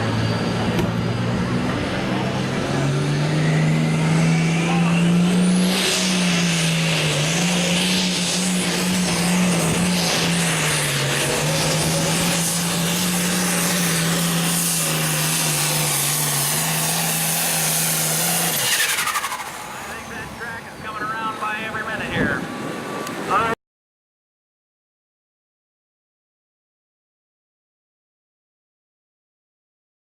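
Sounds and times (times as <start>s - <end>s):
tractor engine at full throttle: 0.0s - 23.6s.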